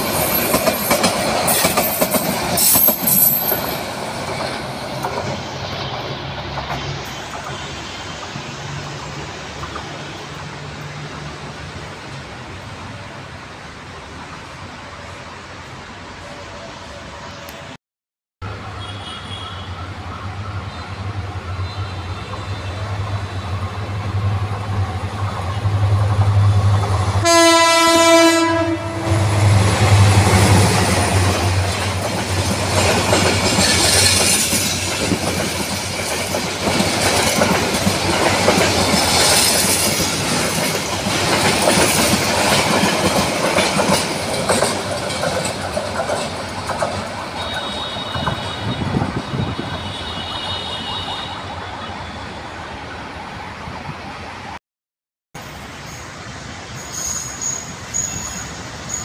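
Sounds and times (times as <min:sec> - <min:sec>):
locomotive engine humming: 0:19.6 - 0:50.0
train horn blast: 0:27.2 - 0:31.6, 0:47.4 - 0:51.6.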